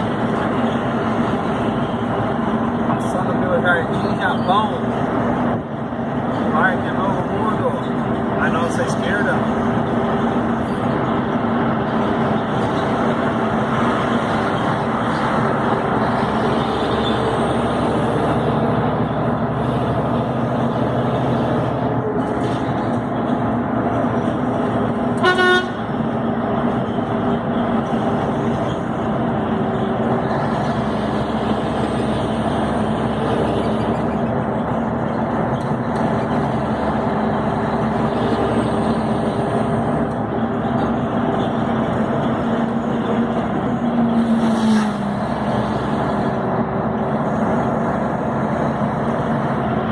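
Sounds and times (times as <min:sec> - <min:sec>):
truck diesel engine running: 0:00.0 - 0:49.9
vehicle horn blast: 0:25.2 - 0:25.9.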